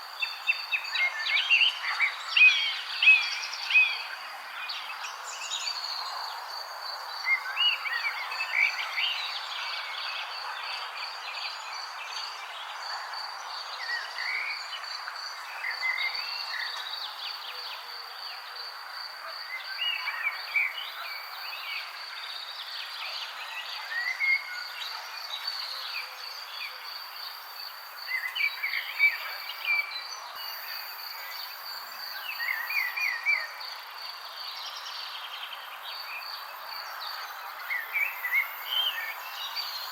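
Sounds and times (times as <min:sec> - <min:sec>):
background hiss: 0:25.3 - 0:39.9.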